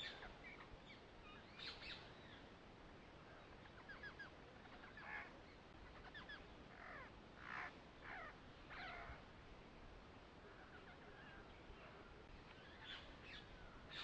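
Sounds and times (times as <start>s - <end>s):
birds chirping: 0.0s - 2.6s.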